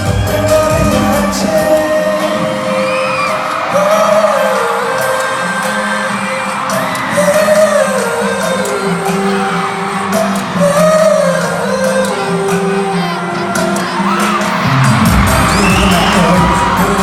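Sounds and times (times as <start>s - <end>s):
backing track with steady bass: 0.0s - 2.8s, 7.1s - 17.0s
crowd whooping: 0.0s - 17.0s
person singing: 0.0s - 17.0s.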